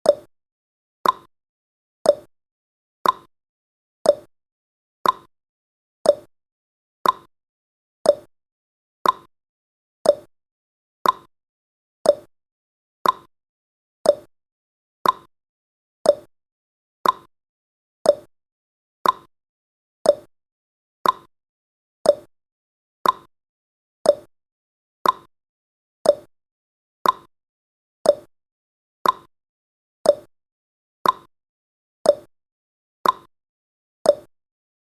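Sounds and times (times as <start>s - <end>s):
timer ticking: 0.0s - 0.3s, 1.0s - 1.3s, 2.0s - 2.3s, 3.0s - 3.3s, 4.0s - 4.3s, 5.0s - 5.3s, 6.0s - 6.3s, 7.0s - 7.3s, 8.0s - 8.3s, 9.0s - 9.3s, 10.0s - 10.3s, 11.0s - 11.3s, 12.0s - 12.3s, 13.0s - 13.3s, 14.0s - 14.3s, 15.0s - 15.3s, 16.0s - 16.3s, 17.0s - 17.3s, 18.0s - 18.3s, 19.0s - 19.3s, 20.0s - 20.3s, 21.0s - 21.3s, 22.0s - 22.3s, 23.0s - 23.3s, 24.0s - 24.3s, 25.0s - 25.3s, 26.0s - 26.3s, 27.0s - 27.3s, 28.0s - 28.3s, 29.0s - 29.3s, 30.0s - 30.3s, 31.0s - 31.3s, 32.0s - 32.3s, 33.0s - 33.3s, 34.1s - 34.3s.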